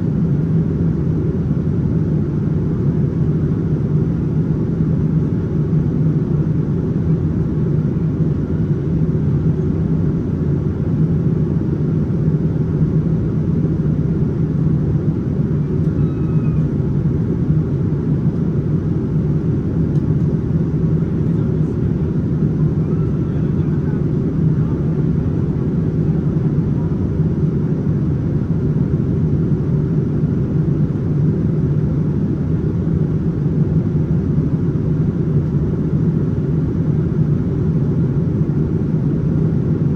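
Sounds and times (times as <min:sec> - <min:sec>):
aircraft engine noise: 0:00.1 - 0:39.9
faint voices: 0:21.0 - 0:27.1.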